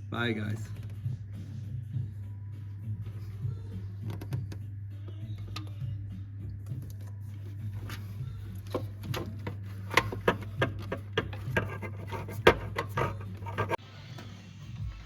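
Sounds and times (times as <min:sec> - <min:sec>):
sharp clicks and knocks: 0:08.6 - 0:13.8.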